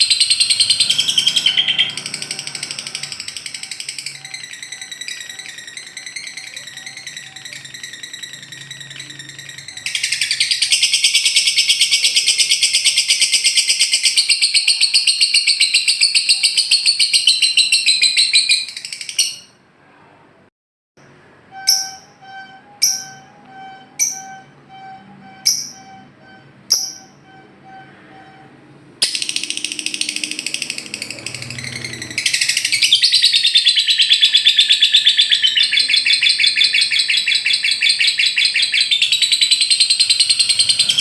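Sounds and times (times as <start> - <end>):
buzzing trill: 0.0 - 16.6, 21.0 - 41.0
lovebird trilling chatter: 0.0 - 19.5, 29.0 - 41.0.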